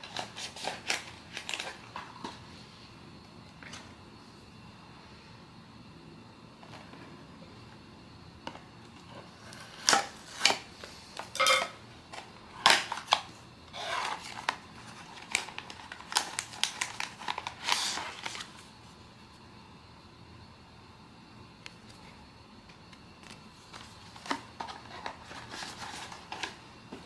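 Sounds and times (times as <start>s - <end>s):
packaging rustling: 0.0s - 2.5s, 9.5s - 18.8s, 23.2s - 27.0s.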